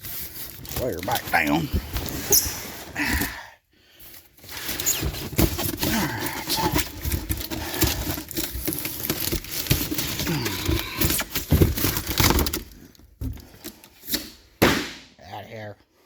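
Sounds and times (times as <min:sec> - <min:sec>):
cardboard box crinkling and scraping: 0:00.0 - 0:03.4, 0:04.1 - 0:14.1.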